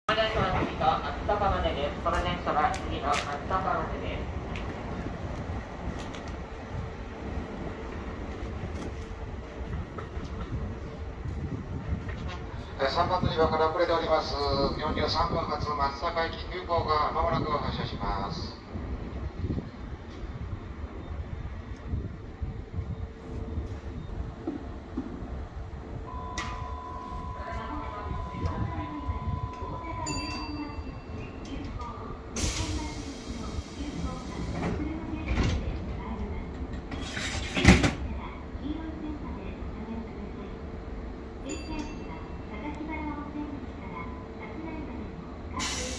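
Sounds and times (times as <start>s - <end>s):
stationary train rumble and hum: 0.1s - 45.9s
electric train humming: 20.0s - 35.2s
hiss of compressed air: 45.6s - 45.9s.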